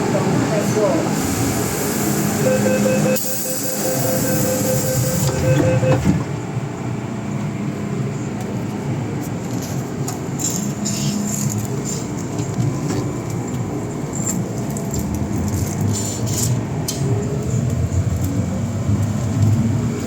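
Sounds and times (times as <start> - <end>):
train wheels rumbling on rail: 0.0 - 20.0
steady whine: 0.4 - 8.4.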